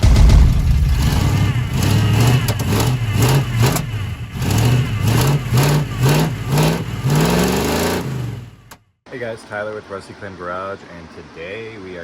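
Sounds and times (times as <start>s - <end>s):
engine revving in blips: 0.9s - 8.8s.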